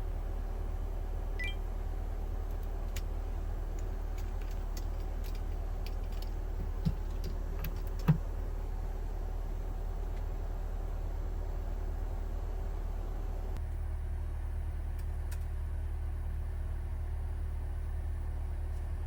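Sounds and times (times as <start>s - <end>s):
low machine hum: 0.0s - 19.0s
light clicks and taps: 3.7s - 8.3s.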